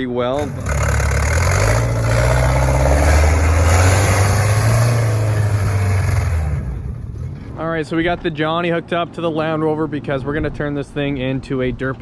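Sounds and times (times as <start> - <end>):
tractor engine running: 0.3 - 8.3.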